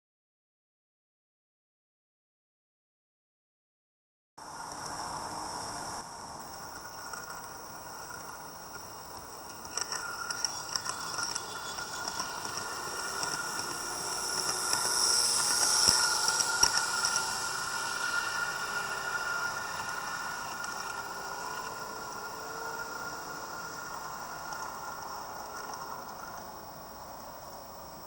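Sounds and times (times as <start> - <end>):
train whine and hiss: 4.4 - 28.0
wheels clicking over rail joints: 9.1 - 26.6.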